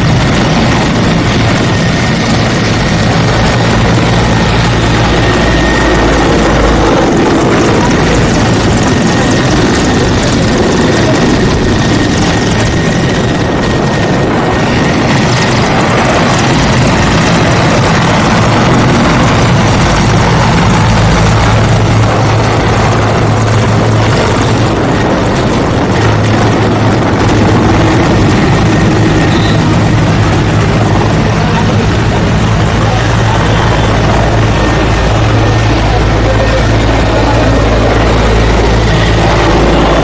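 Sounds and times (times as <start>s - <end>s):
helicopter rotor and engine: 0.0s - 40.0s.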